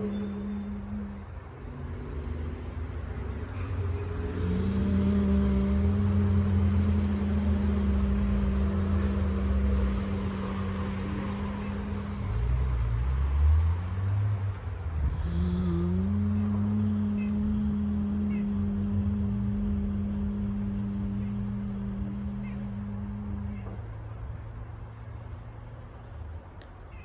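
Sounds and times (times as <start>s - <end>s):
woman humming low note: 0.0s - 2.7s, 4.0s - 12.2s, 15.0s - 24.4s
low steady rumble: 0.0s - 26.4s.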